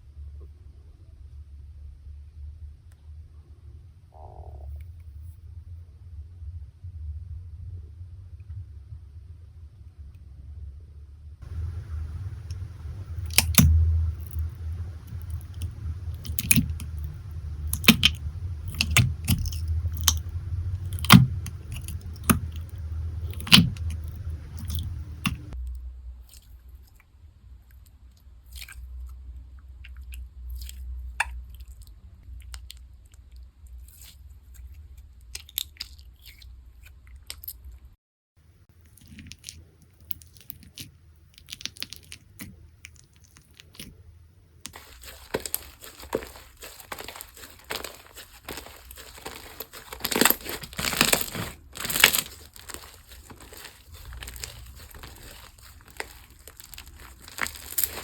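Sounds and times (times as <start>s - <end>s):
slime crunchy clicks: 11.5s - 25.6s, 44.7s - 58.0s.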